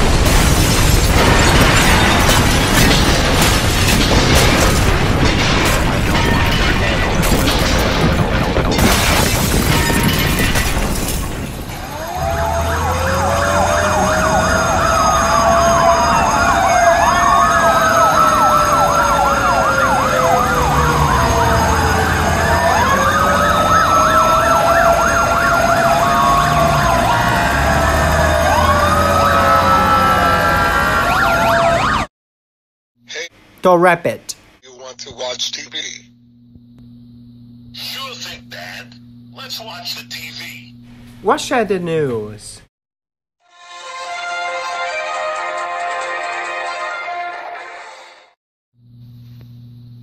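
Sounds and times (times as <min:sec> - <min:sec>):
loud noise: 0:00.0 - 0:10.9
sirens wailing: 0:11.6 - 0:32.1
sirens yelping: 0:11.7 - 0:32.1.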